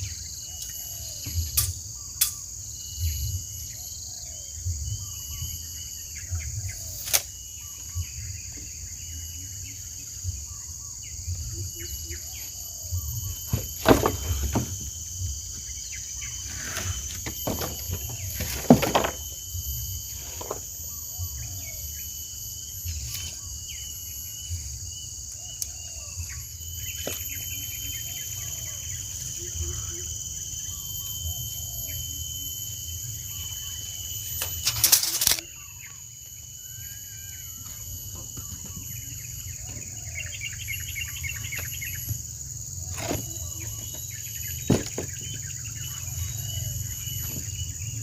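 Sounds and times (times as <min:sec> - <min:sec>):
high-pitched insect drone: 0:00.0 - 0:48.0
clattering knocks: 0:13.5 - 0:14.9, 0:16.7 - 0:19.2
knocks from building work: 0:13.5 - 0:14.9.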